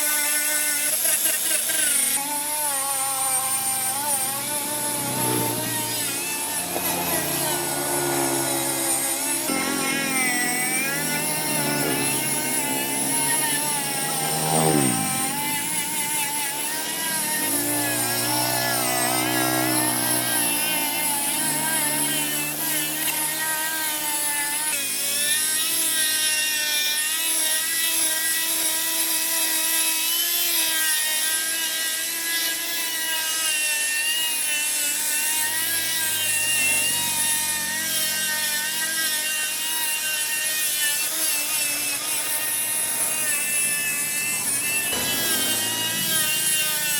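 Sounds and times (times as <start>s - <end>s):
motor running: 0.0s - 30.4s, 31.4s - 46.9s.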